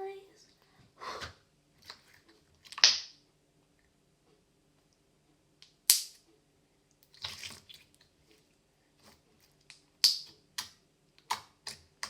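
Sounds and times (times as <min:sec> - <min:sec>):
slime squeezed with wet pops: 0:02.7 - 0:03.2, 0:09.7 - 0:12.0.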